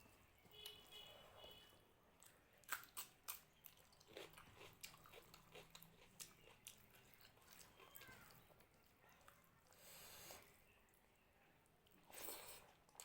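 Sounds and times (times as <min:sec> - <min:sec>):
mouth chewing and smacking: 0:02.2 - 0:10.4, 0:11.8 - 0:13.0.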